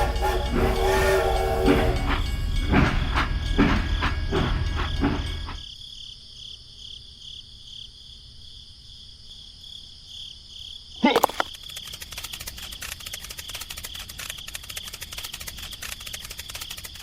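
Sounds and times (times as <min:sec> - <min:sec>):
machine chugging: 0:00.0 - 0:05.6, 0:11.2 - 0:17.0
crickets chirping: 0:00.0 - 0:17.0.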